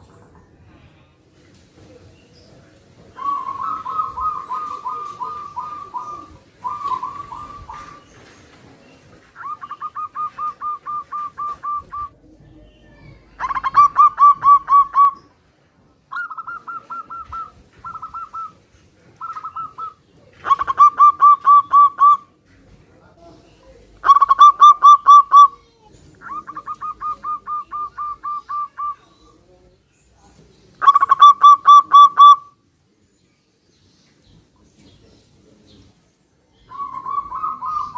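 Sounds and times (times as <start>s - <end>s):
doves cooing: 3.1s - 15.3s, 16.1s - 22.4s, 23.8s - 29.4s, 30.8s - 32.5s, 36.6s - 37.9s.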